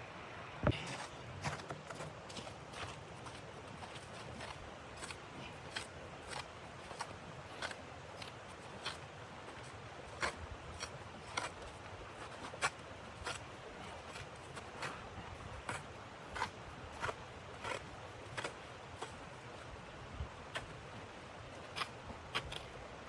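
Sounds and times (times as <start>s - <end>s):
footsteps crunching in snow: 0.7s - 22.1s.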